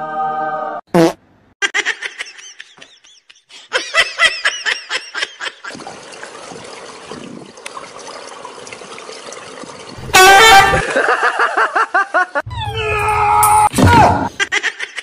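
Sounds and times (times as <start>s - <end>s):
person laughing: 1.6s - 5.8s, 10.7s - 12.5s.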